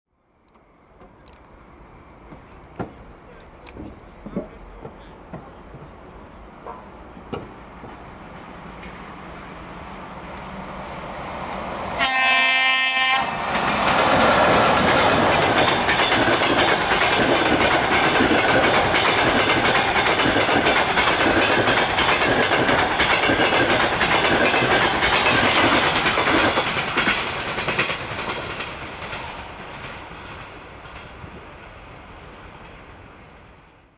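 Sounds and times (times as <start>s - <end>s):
rail and wheel noise: 0.2s - 33.9s
train horn blast: 12.0s - 13.4s
wheels clattering over rail joints: 13.4s - 31.1s.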